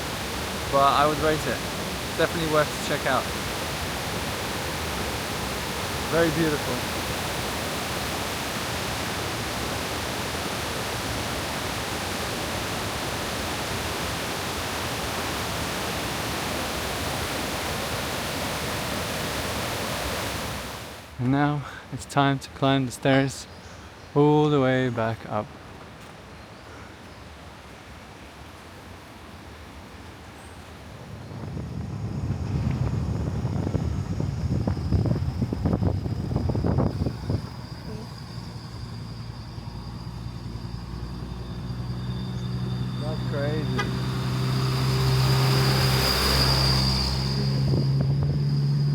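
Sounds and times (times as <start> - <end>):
waterfall roaring: 0.0 - 21.2
wind buffeting microphone: 30.8 - 40.1, 41.6 - 48.9
faint steady high tone: 35.2 - 48.9.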